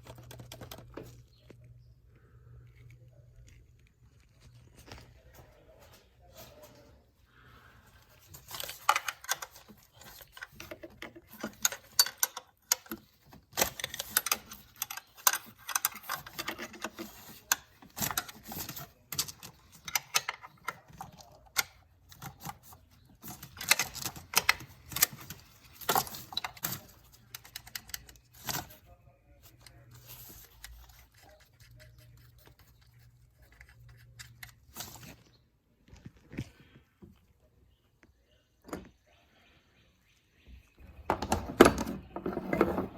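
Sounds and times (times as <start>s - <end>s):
hard objects clicking and clattering: 0.0s - 1.9s, 8.1s - 28.9s
faint low hum: 0.0s - 42.9s.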